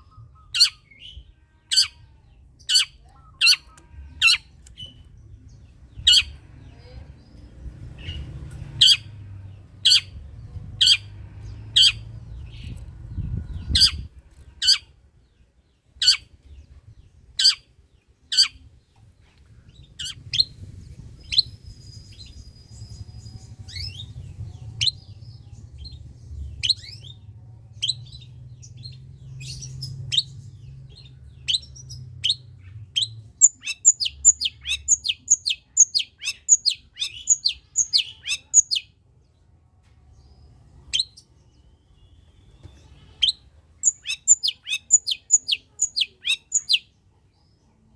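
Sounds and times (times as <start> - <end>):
bird chirping: 0.0 - 19.0, 19.6 - 39.4, 40.1 - 47.9
low background rumble: 0.0 - 35.8.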